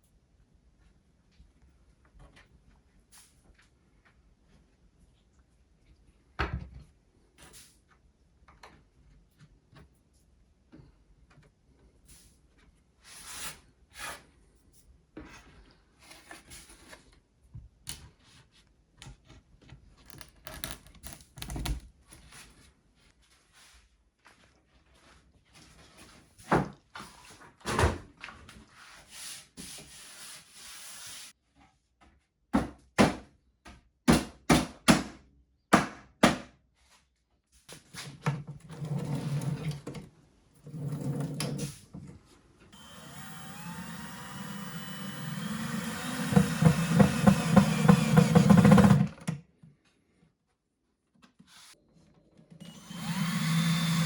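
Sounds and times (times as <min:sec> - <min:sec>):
small power tool running: 0:42.8 - 0:49.2, 0:52.6 - 0:54.0.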